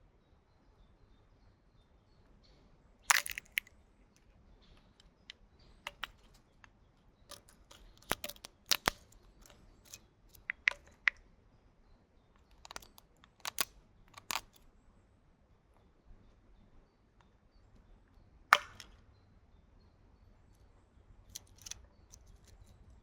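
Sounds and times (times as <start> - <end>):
small tools clicking: 3.1 - 3.7, 5.9 - 6.7, 7.3 - 11.2, 12.4 - 14.6, 21.3 - 22.8
small tools scraping: 7.3 - 11.1, 21.3 - 22.9.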